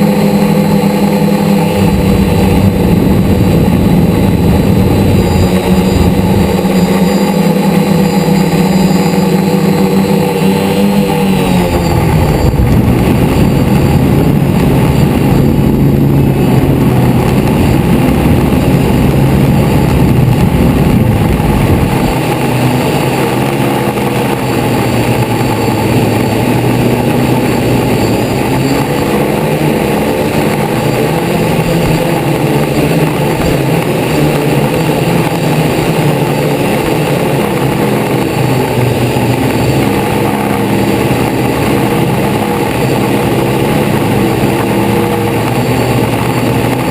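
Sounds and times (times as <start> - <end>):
deep rumble: 0.0 - 46.9
drone propellers buzzing: 0.0 - 46.9.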